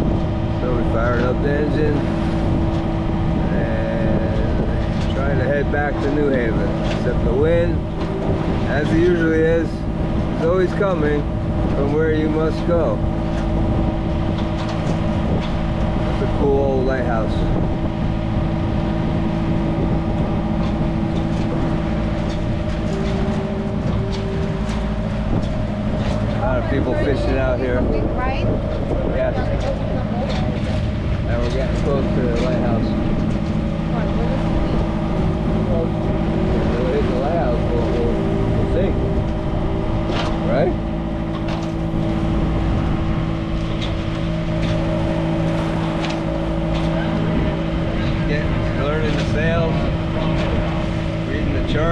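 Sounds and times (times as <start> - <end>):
boat engine droning: 0.0 - 51.9.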